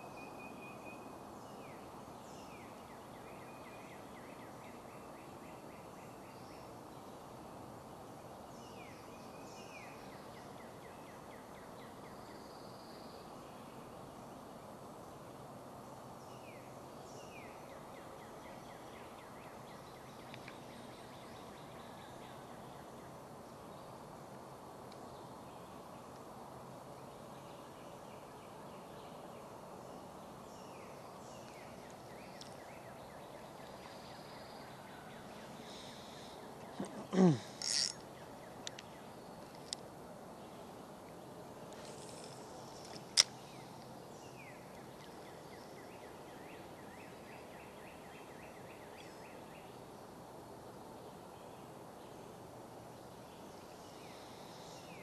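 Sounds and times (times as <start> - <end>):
outdoor background noise: 0.0 - 55.0
bird calling with rattling trill: 35.7 - 39.8.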